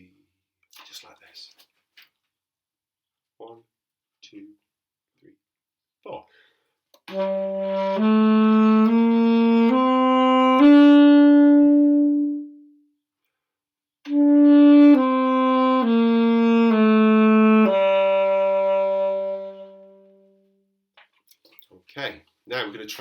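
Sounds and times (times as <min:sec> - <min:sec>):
saxophone playing a scale: 0:07.0 - 0:12.8, 0:14.1 - 0:20.6.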